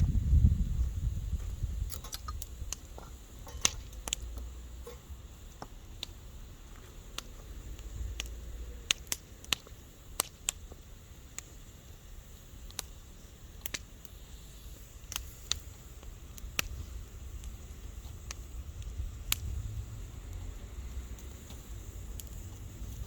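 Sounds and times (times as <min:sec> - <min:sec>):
low rumble: 0:00.0 - 0:01.9, 0:18.6 - 0:23.0
bonfire crackling and popping: 0:00.0 - 0:23.0
faint hiss: 0:00.0 - 0:23.0.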